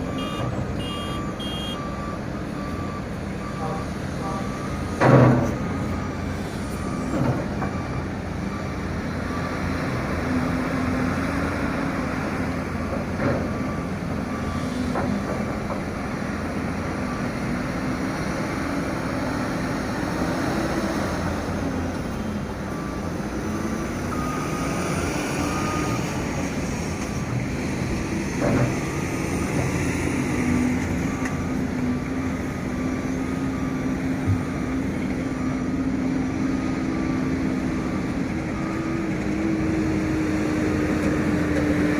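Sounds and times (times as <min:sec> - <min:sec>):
repeated beeping alarm: 0:00.0 - 0:09.7
heavy diesel machinery engine: 0:00.0 - 0:41.9.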